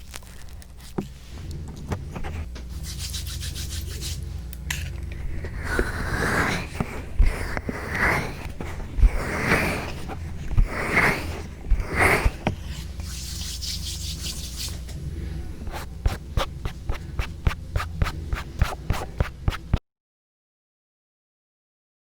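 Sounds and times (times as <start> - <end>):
rubbing on a microphone: 5.5 - 14.9.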